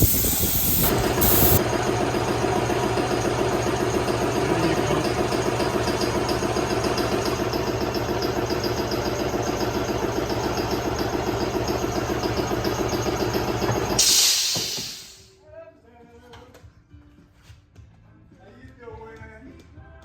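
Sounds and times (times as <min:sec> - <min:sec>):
engine running with fast pulse: 0:00.0 - 0:14.0.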